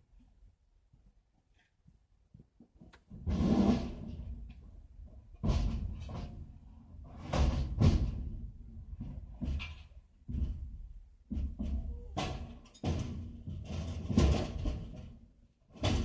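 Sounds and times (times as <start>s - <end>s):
heavy knocks and thuds: 5.3s - 6.5s, 7.2s - 15.1s.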